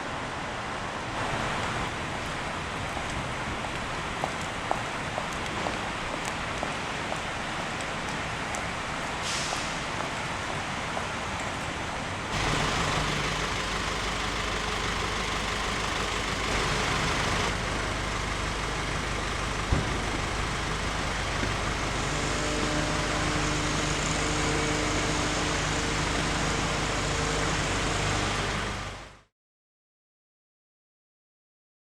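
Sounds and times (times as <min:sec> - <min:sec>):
tyres hissing on wet road: 0:00.0 - 0:29.3
passing car engines rumbling: 0:12.3 - 0:29.2
thump: 0:19.7 - 0:20.0.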